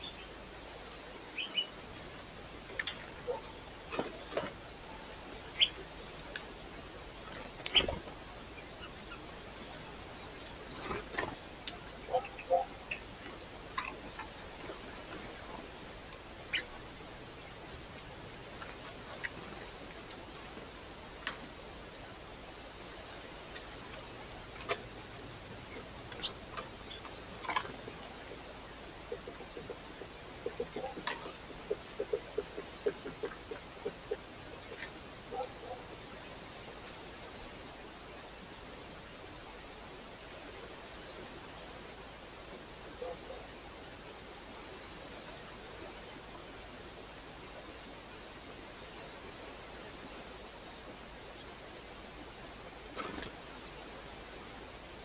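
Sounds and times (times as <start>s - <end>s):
microphone hiss: 0.0s - 55.0s
birds pecking taps: 25.8s - 35.5s.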